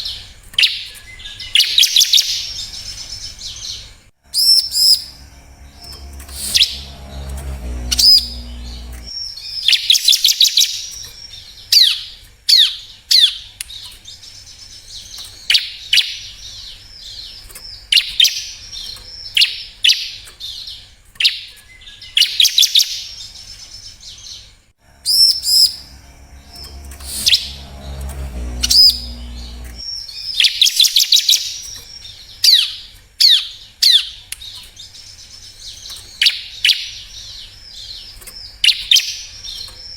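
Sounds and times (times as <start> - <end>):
low rumble: 4.3 - 9.1, 24.8 - 29.8.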